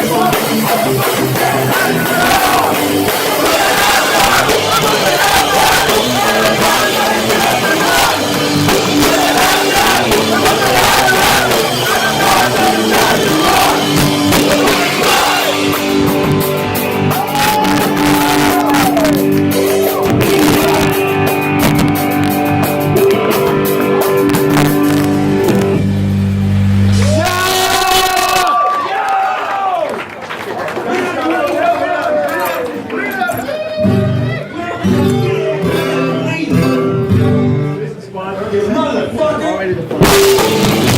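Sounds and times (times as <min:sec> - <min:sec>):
shouted vocals: 0:00.0 - 0:15.8, 0:17.1 - 0:21.0, 0:27.0 - 0:30.0, 0:30.8 - 0:36.6
distorted guitars: 0:00.0 - 0:28.5, 0:33.8 - 0:37.9, 0:39.8 - 0:40.9
drums: 0:00.0 - 0:28.6, 0:39.8 - 0:40.9.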